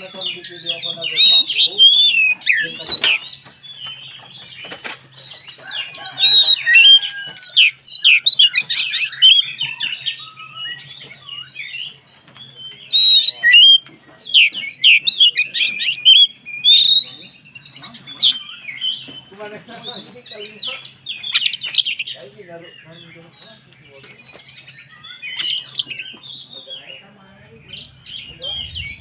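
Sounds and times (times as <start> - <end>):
bird singing whistled notes: 6.1 - 11.8, 12.6 - 17.3.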